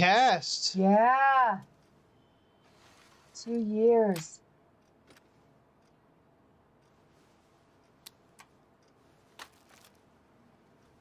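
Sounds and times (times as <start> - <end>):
soft clicks: 3.5 - 11.0.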